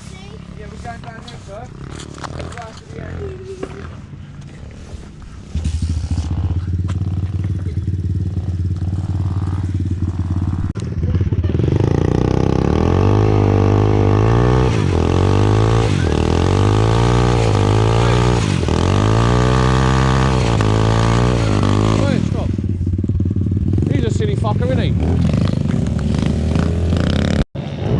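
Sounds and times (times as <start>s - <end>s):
small engine starting and revving: 11.8s - 22.5s.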